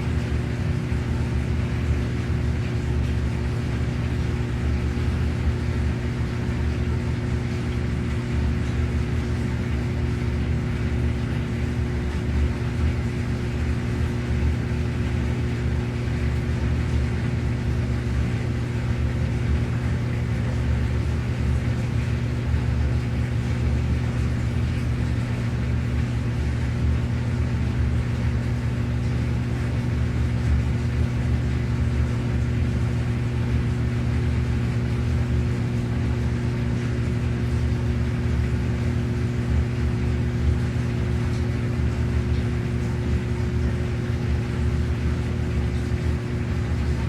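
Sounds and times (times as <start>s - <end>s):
washing machine running: 0.0s - 47.0s.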